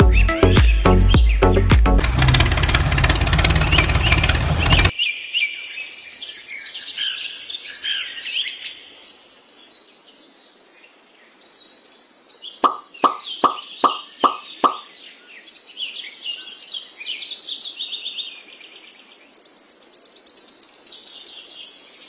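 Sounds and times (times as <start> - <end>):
background music with a beat: 0.0 - 2.0
small birds chirping: 0.0 - 22.0.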